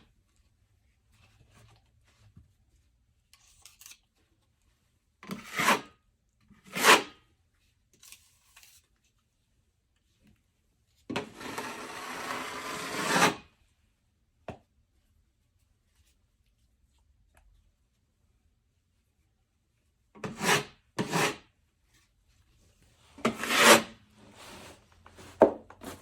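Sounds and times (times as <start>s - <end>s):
drywall knife scraping: 5.3s - 6.0s, 6.6s - 7.3s, 11.1s - 13.5s, 20.2s - 21.6s, 23.2s - 26.0s.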